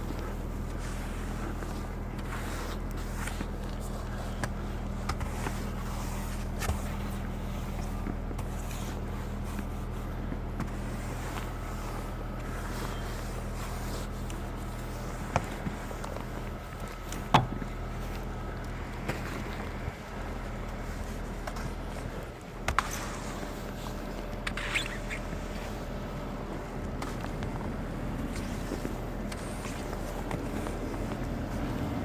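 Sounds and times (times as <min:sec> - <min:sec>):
car engine idling: 0:00.0 - 0:24.6
knocks and scrapes clearing snow: 0:00.0 - 0:32.0.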